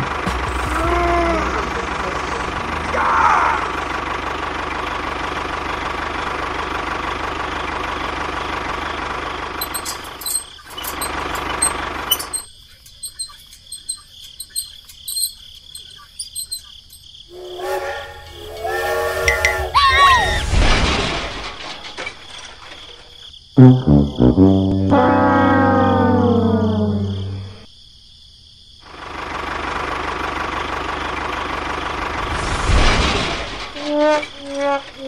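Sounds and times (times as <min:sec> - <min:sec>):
toy motor whirring: 0:09.6 - 0:17.0
multi-tone pitched sound: 0:23.6 - 0:27.6.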